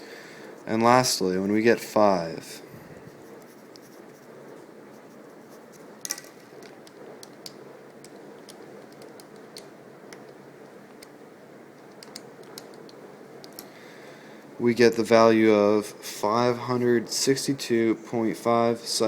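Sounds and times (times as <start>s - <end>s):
low room hiss: 0.0s - 19.0s
light clicks and taps: 11.8s - 13.7s.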